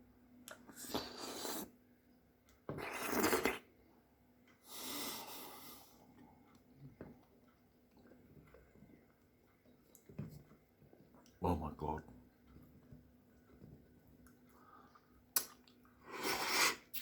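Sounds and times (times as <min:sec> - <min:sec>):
person slurping oyster: 0:00.7 - 0:01.8, 0:02.7 - 0:03.7, 0:16.0 - 0:17.0.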